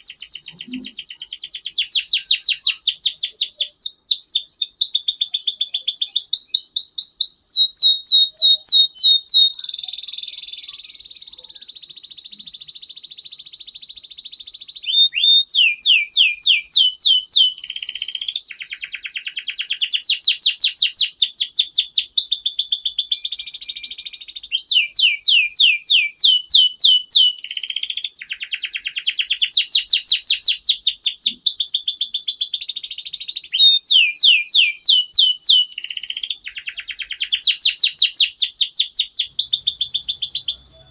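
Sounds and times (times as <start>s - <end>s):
canary singing: 0.0s - 40.9s.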